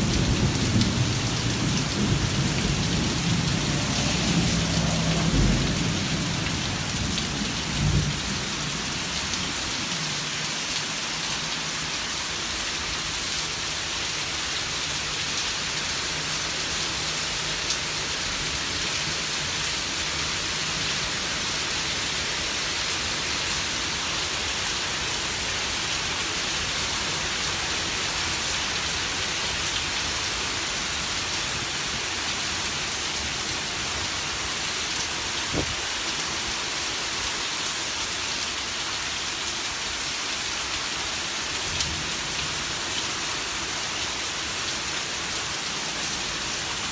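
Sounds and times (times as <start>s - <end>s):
heavy rain hissing: 0.0s - 46.9s
thunder rumble: 0.2s - 8.8s.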